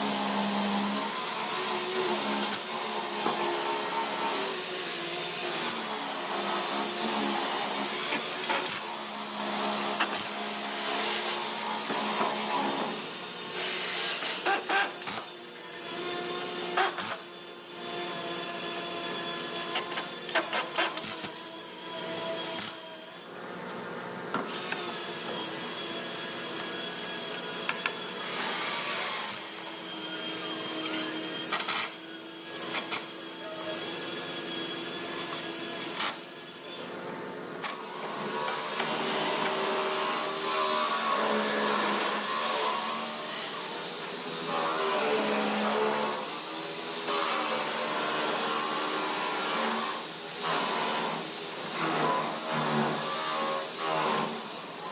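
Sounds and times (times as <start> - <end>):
electric power tools running: 24.4 - 54.8.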